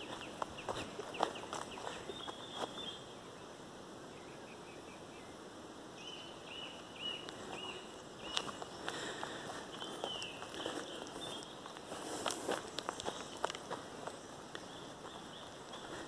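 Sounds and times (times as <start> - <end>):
footsteps on dry leaves: 0.0 - 3.0, 7.3 - 16.0.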